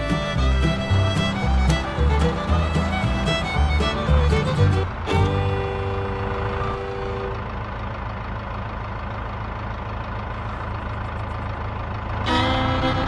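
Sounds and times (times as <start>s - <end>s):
held music note: 0.0s - 7.6s, 12.2s - 13.0s
engine idling with pulsing rumble: 0.0s - 13.0s.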